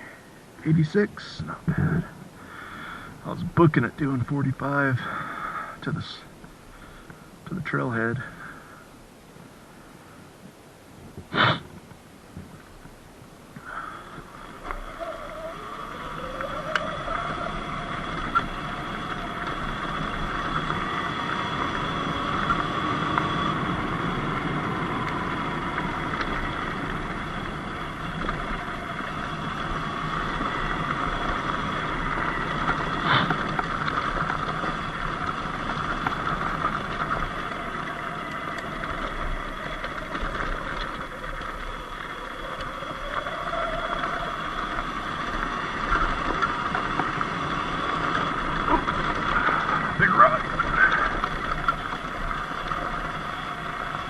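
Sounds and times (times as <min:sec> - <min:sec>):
tyre and wind noise: 0:08.8 - 0:54.0
electric motorbike motor whining: 0:13.6 - 0:54.0.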